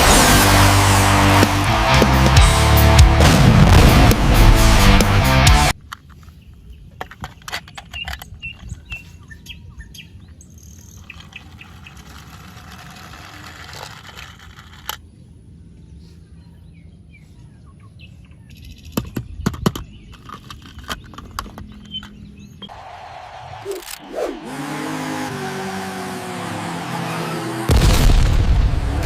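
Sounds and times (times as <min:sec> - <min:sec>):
birds chirping: 0:05.8 - 0:12.4, 0:14.8 - 0:22.8
sharp clicks and knocks: 0:06.9 - 0:08.8.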